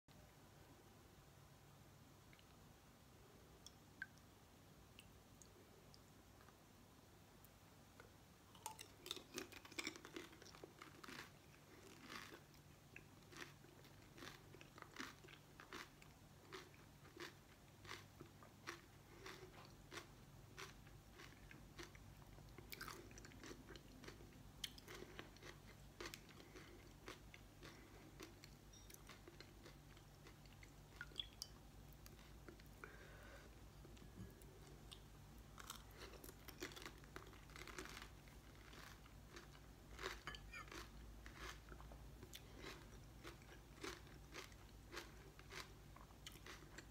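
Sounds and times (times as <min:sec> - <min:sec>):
crisp shells crunching: 0:36.6 - 0:41.6.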